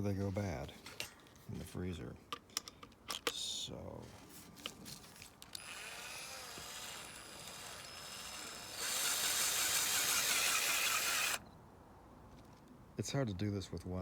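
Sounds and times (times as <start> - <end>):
cordless drill clicks: 5.4 - 11.4
drill spinning with thin whine: 5.5 - 11.4
blender blades churning frozen fruit: 5.6 - 11.4.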